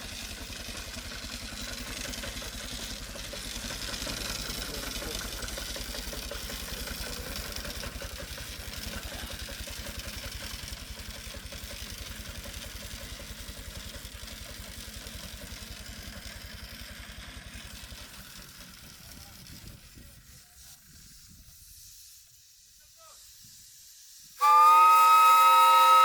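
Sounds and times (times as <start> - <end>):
engine idling: 0.0 - 21.2.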